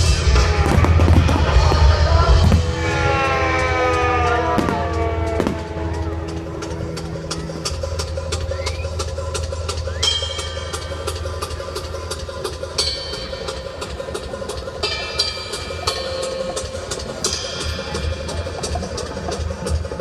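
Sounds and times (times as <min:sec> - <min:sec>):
fireworks bangs and crackles: 0:00.0 - 0:06.5
music: 0:00.0 - 0:20.0
firework whistling: 0:08.0 - 0:11.2.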